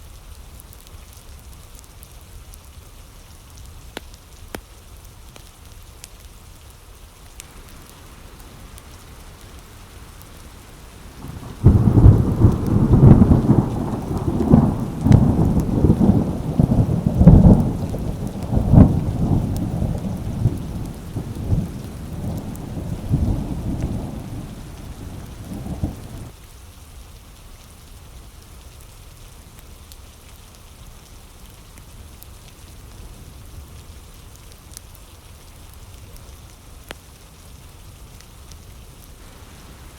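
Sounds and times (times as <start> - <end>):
steady rain: 0.0 - 39.9
thunder crack and rumbling: 7.4 - 26.3, 39.2 - 39.9.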